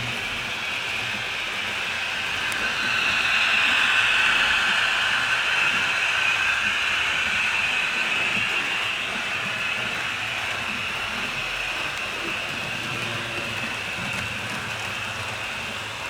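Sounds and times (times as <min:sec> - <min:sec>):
model train wheels rumbling on rails: 0:00.0 - 0:16.0.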